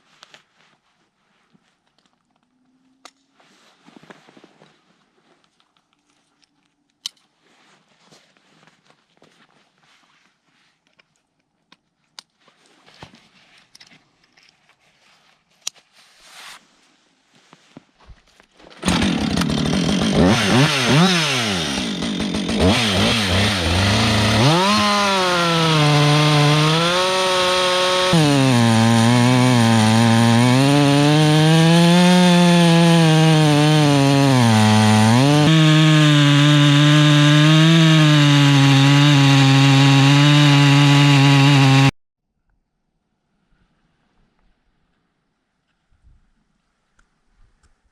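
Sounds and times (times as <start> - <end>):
chainsaw cutting log: 18.8 - 42.0.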